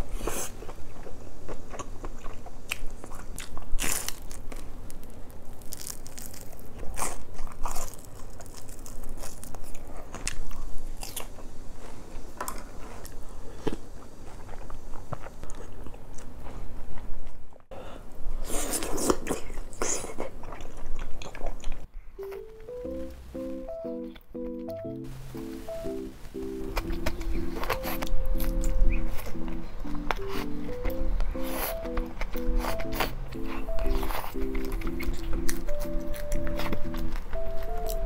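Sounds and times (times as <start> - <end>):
person crunching food: 0.1 - 11.5, 26.6 - 38.0.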